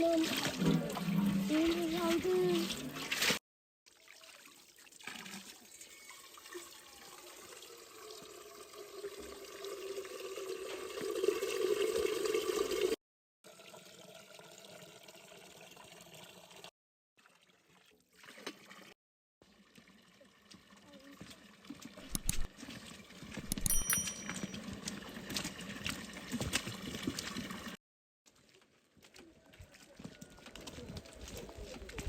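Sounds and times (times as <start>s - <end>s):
water pouring into container: 0.0s - 23.8s, 24.7s - 27.8s
water trickling: 19.5s - 27.8s.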